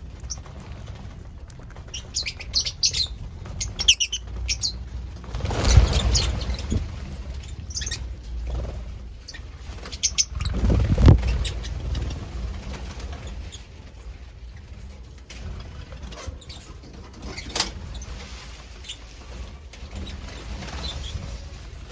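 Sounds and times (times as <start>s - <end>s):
lovebirds chirping: 0.1s - 8.2s, 9.2s - 12.6s.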